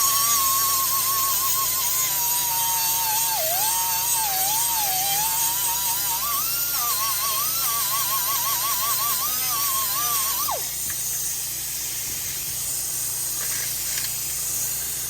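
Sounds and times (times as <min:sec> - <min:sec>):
rotary tool grinding metal: 0:00.0 - 0:15.0.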